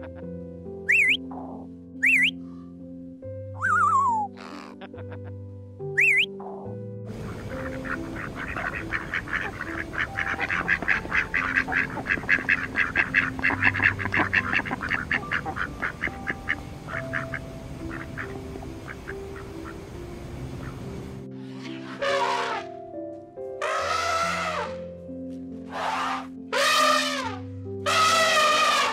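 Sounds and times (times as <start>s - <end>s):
ducks quacking: 0.9s - 2.4s, 6.0s - 22.7s, 23.6s - 24.8s, 25.7s - 28.9s.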